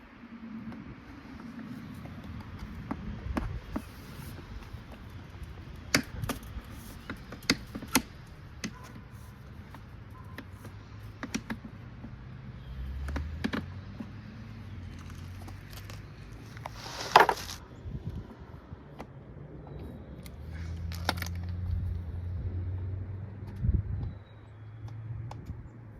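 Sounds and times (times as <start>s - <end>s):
parts clicking and knocking: 2.2s - 12.3s, 13.0s - 14.2s.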